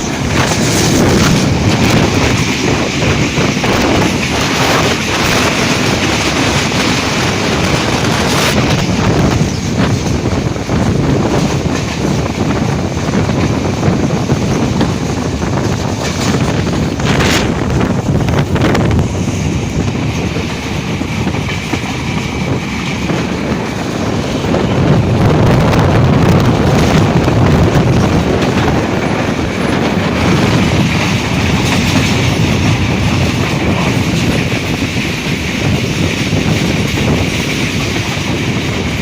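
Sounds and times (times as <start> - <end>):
train rumbling past: 0.0 - 39.0
wind buffeting microphone: 0.0 - 39.0.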